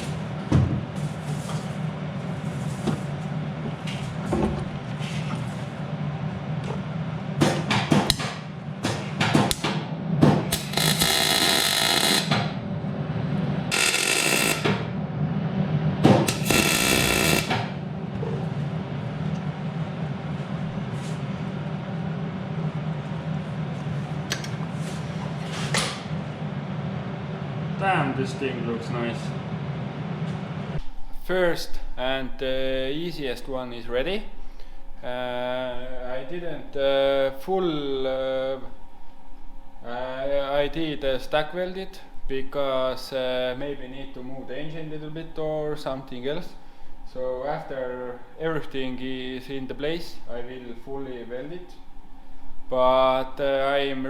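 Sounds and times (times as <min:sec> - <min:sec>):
steady low hum: 0:00.0 - 0:54.0
welding crackle: 0:10.5 - 0:12.3, 0:16.3 - 0:17.5.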